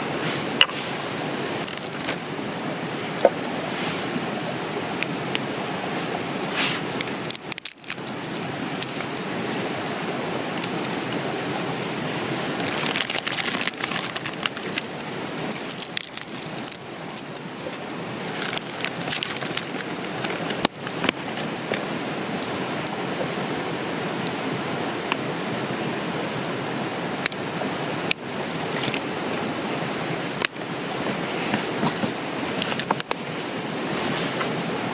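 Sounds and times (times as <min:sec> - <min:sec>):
river rushing: 0:00.0 - 0:34.9.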